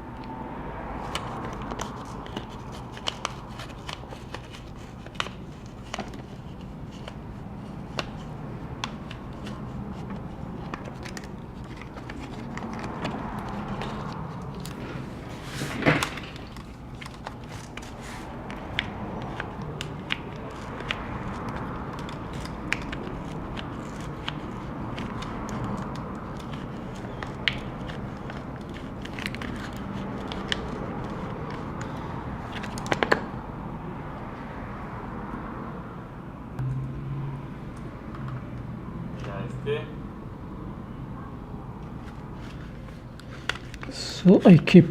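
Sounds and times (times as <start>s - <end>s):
plastic card scraping: 1.0s - 33.3s, 42.1s - 44.6s.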